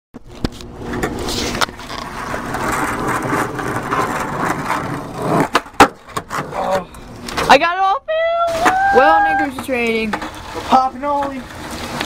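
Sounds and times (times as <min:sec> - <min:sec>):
skateboard wheels rolling on wet pavement: 0:00.2 - 0:07.6, 0:08.4 - 0:12.0
skateboard clacking: 0:00.9 - 0:06.8.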